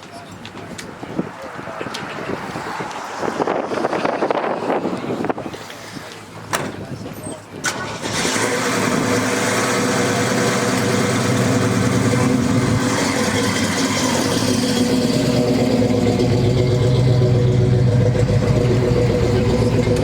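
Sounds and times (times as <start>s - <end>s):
car engine idling: 7.7s - 20.0s.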